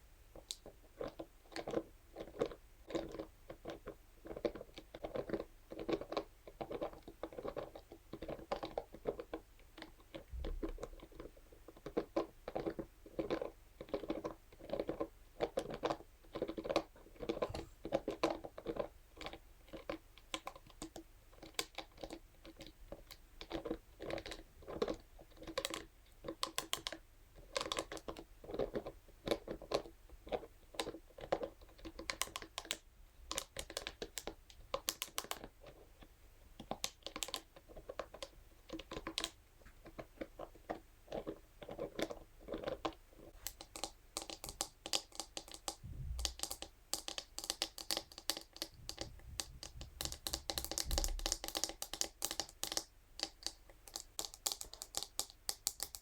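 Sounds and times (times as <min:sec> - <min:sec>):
brush tapping and scratching: 0:43.3 - 0:56.0
soft low handling bumps: 0:45.8 - 0:46.3.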